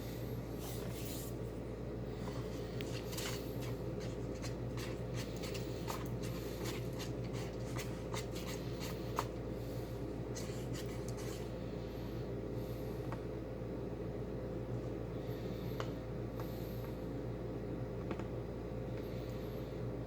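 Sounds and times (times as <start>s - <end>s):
steady low hum: 0.0s - 20.0s
slime being stirred and scraped: 2.2s - 11.6s.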